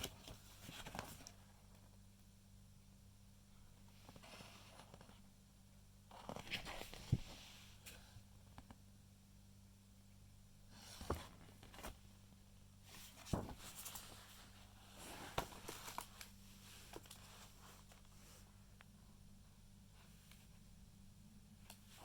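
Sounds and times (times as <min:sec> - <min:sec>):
faint low hum: 0:00.0 - 0:22.0
paper pages rustling: 0:13.0 - 0:18.1.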